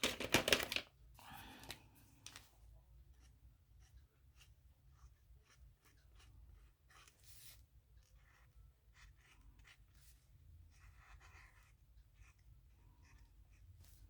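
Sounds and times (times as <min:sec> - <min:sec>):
marker scratching on paper: 0:03.1 - 0:14.0.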